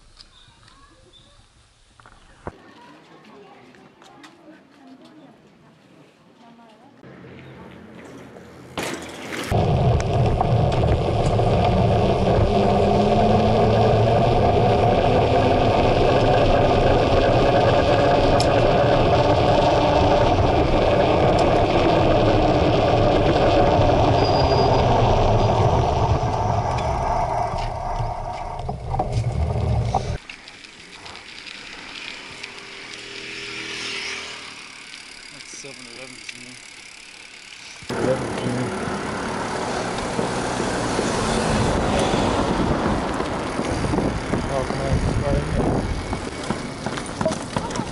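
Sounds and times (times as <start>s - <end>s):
quiet street sound: 0.0s - 47.9s
bike rumble and rattle: 7.6s - 47.9s
wind buffeting camera: 9.5s - 30.2s, 40.0s - 47.9s.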